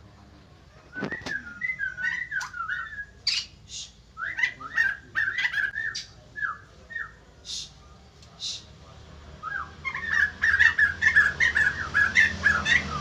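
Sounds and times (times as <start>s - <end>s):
bird whistling gliding notes: 0.8s - 7.2s, 9.4s - 13.0s.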